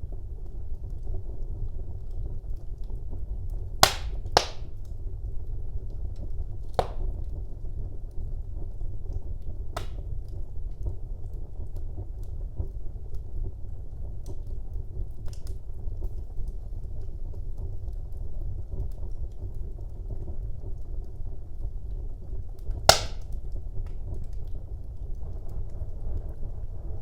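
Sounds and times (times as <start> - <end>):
wood fire crackling: 0.0 - 27.0
sharp loud pop from fire: 3.8 - 4.7, 6.8 - 7.3, 9.8 - 10.1, 22.9 - 23.4.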